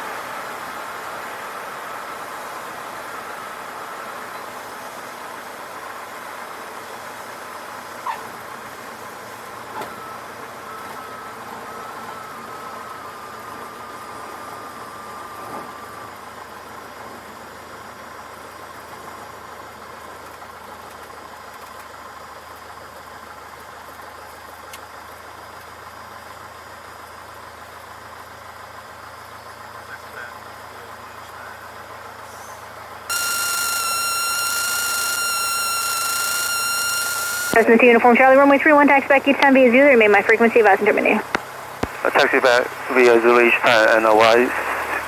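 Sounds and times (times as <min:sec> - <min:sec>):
faint thin tone: 0:33.1 - 0:44.7
aircraft engine running: 0:33.1 - 0:45.0.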